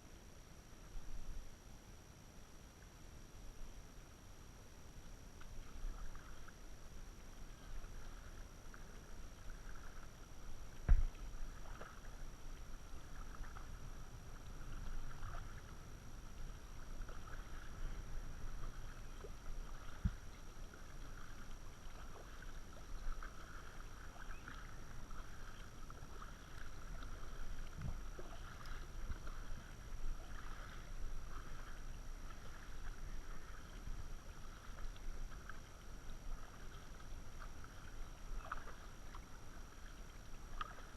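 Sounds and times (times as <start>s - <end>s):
paddle splashing water: 4.8s - 40.9s.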